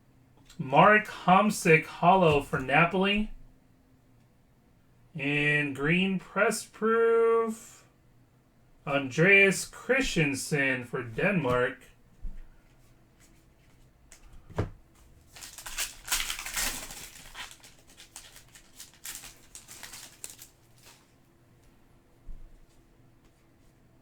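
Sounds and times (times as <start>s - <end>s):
pack wrapper rustling: 15.2s - 21.2s
cards rustling and sliding: 15.3s - 21.1s.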